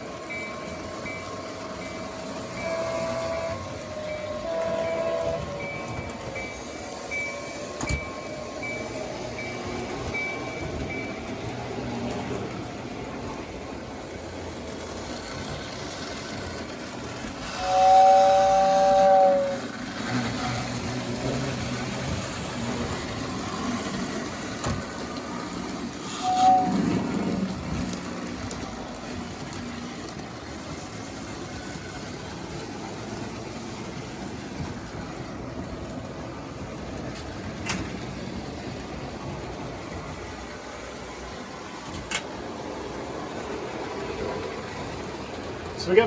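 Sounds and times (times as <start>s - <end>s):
model trains rumbling on track: 0.0s - 46.0s
two-note train whistle: 1.8s - 9.6s, 17.5s - 19.7s, 26.1s - 26.9s
faint high beeps: 4.1s - 11.2s.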